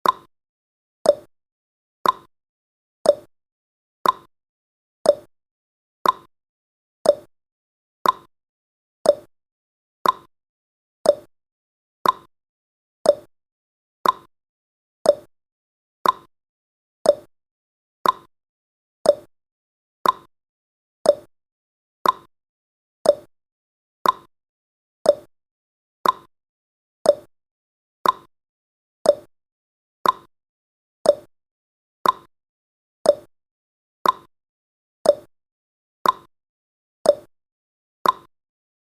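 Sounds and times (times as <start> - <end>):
timer ticking: 0.0 - 0.3, 1.0 - 1.3, 2.0 - 2.3, 3.0 - 3.3, 4.0 - 4.3, 5.1 - 5.3, 6.0 - 6.3, 7.0 - 7.3, 8.0 - 8.3, 9.0 - 9.3, 10.0 - 10.3, 11.0 - 11.3, 12.0 - 12.3, 13.0 - 13.3, 14.0 - 14.3, 15.0 - 15.3, 16.0 - 16.3, 17.0 - 17.3, 18.0 - 18.3, 19.0 - 19.3, 20.0 - 20.3, 21.0 - 21.3, 22.0 - 22.3, 23.0 - 23.3, 24.0 - 24.3, 25.0 - 25.3, 26.0 - 26.3, 27.0 - 27.3, 28.0 - 28.3, 29.0 - 29.3, 30.0 - 30.3, 31.0 - 31.3, 32.0 - 32.3, 33.0 - 33.3, 34.0 - 34.3, 35.0 - 35.3, 36.0 - 36.3, 37.1 - 37.3, 38.0 - 38.3.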